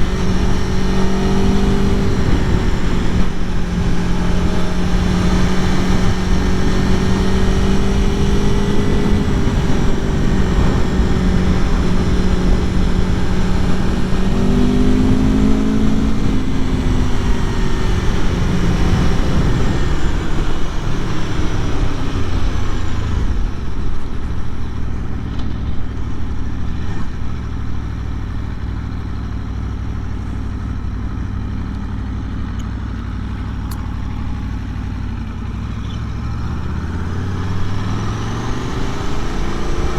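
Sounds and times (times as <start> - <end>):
wind noise: 0.0 - 26.0
motorcycle engine revving: 0.0 - 39.9.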